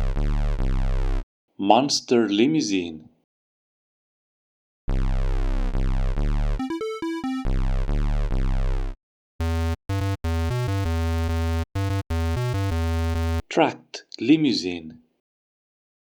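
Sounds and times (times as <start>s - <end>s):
electronic synthesizer music: 6.6s - 7.6s, 9.4s - 13.4s.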